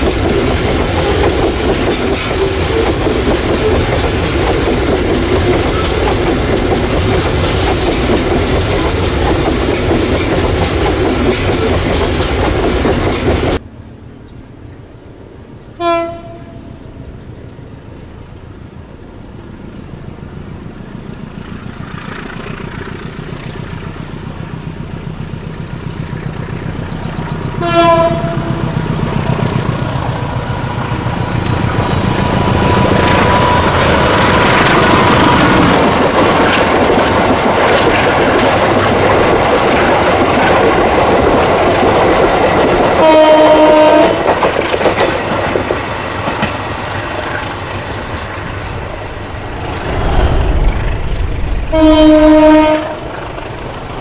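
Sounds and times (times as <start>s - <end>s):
train wheels rumbling and clattering: 0.0s - 13.6s, 19.7s - 54.0s
train horn: 15.8s - 16.8s, 27.6s - 28.9s, 43.0s - 44.3s, 51.6s - 53.2s.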